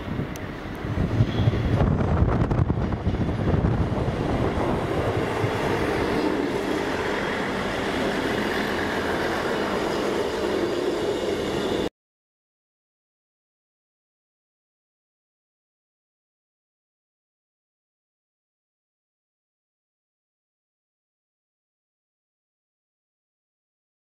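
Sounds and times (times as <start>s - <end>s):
train running on rails: 0.0s - 11.9s.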